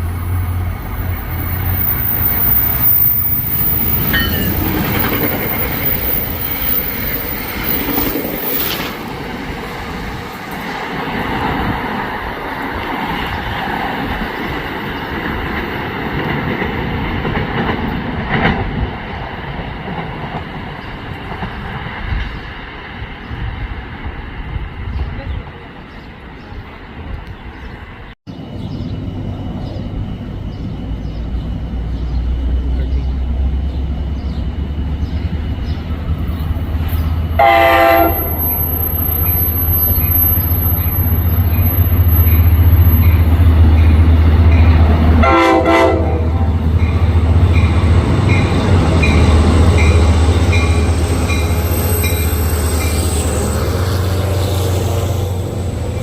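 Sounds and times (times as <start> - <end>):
diesel train engine rumble: 0.0 - 56.0
train air horn blasts: 37.4 - 40.1, 45.2 - 46.6.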